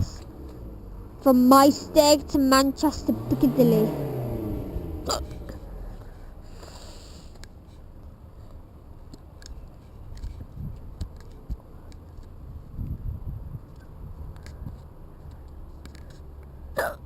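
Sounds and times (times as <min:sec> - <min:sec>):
wind rumble on microphone: 0:00.0 - 0:00.3, 0:10.0 - 0:11.7, 0:12.4 - 0:15.0.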